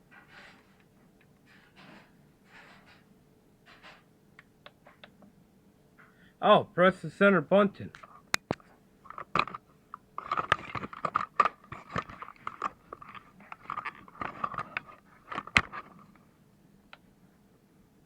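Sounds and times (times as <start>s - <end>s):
crackling scraping handling noise: 8.0s - 16.3s.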